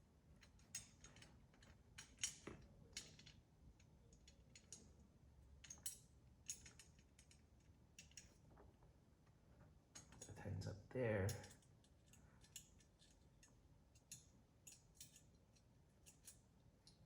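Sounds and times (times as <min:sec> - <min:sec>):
allen key clicking on screws: 0:05.6 - 0:08.3, 0:11.3 - 0:17.0.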